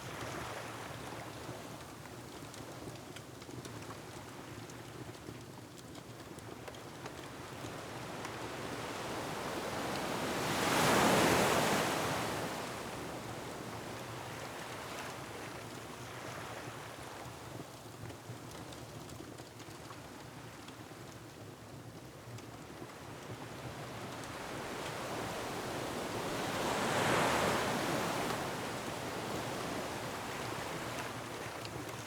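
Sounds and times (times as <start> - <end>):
wind: 0.0 - 32.0
faint wood fire crackles: 0.1 - 32.0
ocean waves on rocky shore: 23.8 - 32.0.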